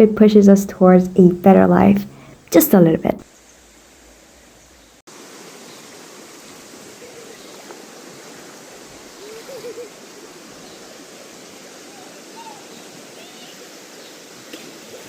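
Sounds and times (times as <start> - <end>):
stream flowing: 5.1 - 15.0.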